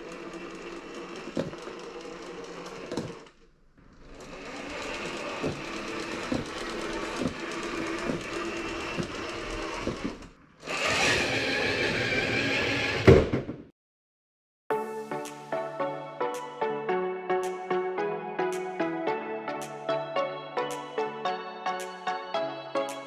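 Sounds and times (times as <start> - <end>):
electric motor and gearbox whining: 0.0 - 13.3
wheels and suspension knocking: 0.1 - 3.4, 4.0 - 11.2.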